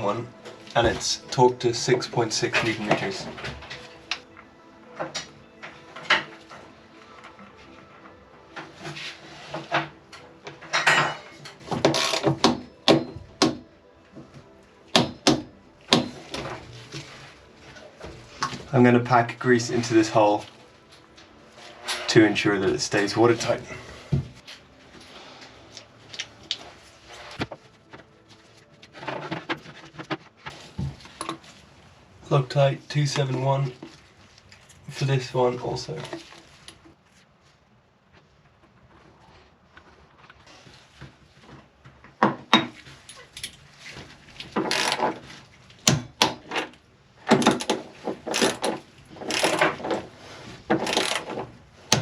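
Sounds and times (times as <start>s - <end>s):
hand tools clicking and knocking: 9.5s - 14.3s, 14.9s - 16.6s, 44.4s - 52.0s.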